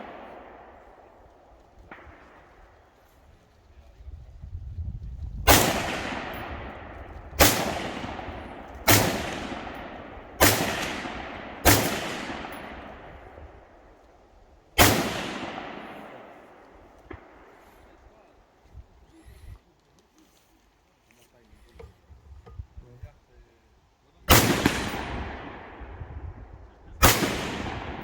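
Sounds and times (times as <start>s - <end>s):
rifle shots with echo: 0.0s - 3.1s, 5.4s - 14.0s, 14.8s - 18.1s, 24.3s - 26.4s, 27.0s - 28.0s.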